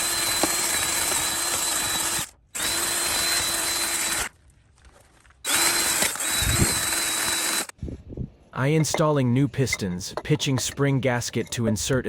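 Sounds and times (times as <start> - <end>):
drill motor whine: 0.0 - 4.3, 5.5 - 7.7.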